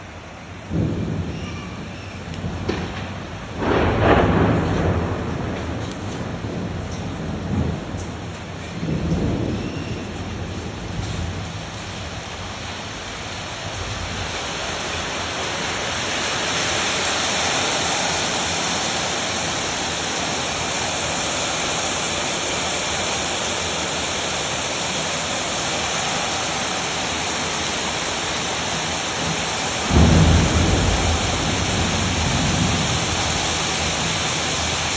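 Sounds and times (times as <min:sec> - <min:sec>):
heavy rain falling: 0:00.0 - 0:34.9
low rumble of thunder: 0:00.6 - 0:15.4, 0:28.7 - 0:34.9.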